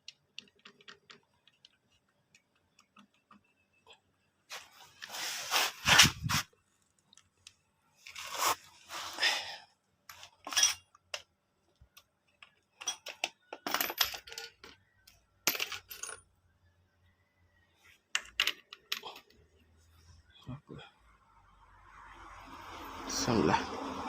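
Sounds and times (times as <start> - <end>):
metal tools clinking: 10.1 - 10.9, 12.7 - 14.8.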